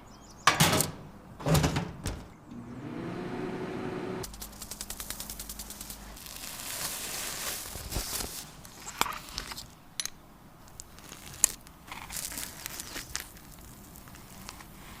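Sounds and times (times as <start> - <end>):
faint rustling and crinkling: 4.3 - 15.0.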